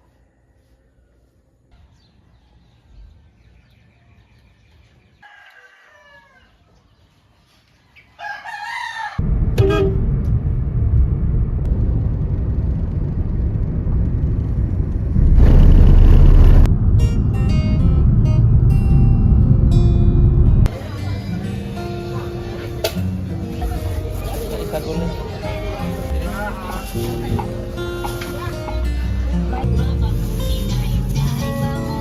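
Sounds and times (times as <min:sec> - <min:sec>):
rooster crowing: 0:05.2 - 0:06.8, 0:08.2 - 0:09.2
loud steady low noise: 0:09.2 - 0:21.1.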